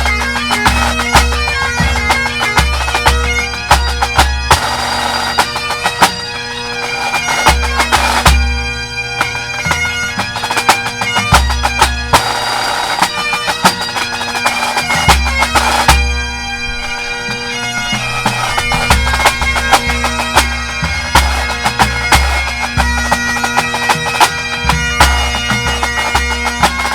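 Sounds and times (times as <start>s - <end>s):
bagpipes with drones: 0.0s - 26.9s
bass drum beats: 17.3s - 23.2s.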